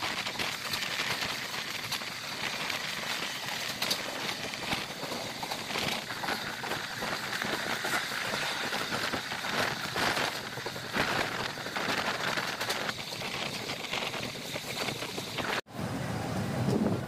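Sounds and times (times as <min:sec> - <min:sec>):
train wheels rattling on track: 0:00.0 - 0:15.6
wind noise: 0:00.0 - 0:17.0.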